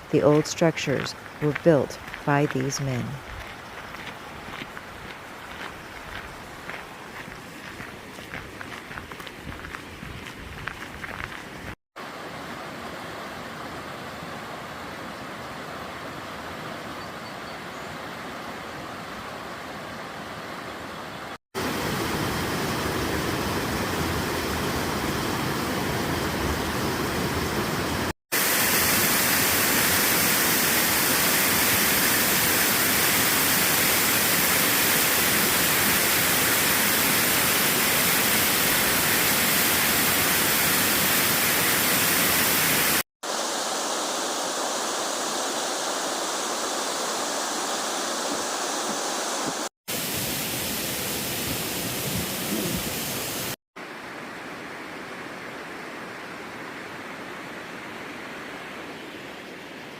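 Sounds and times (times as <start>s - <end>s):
waterfall rushing: 21.6s - 53.6s.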